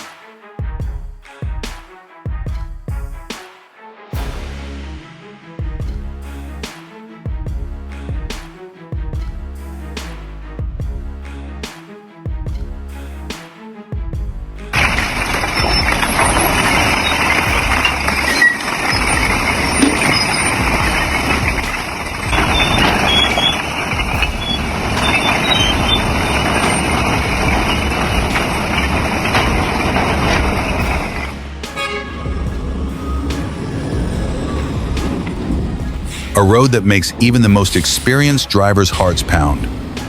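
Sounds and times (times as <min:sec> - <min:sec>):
heavy truck engine and road noise: 0:14.4 - 0:40.0.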